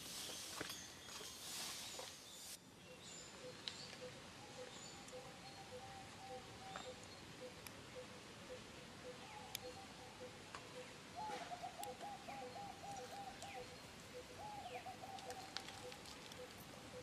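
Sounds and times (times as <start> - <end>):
rolling trilled bird call: 5.0 - 17.0.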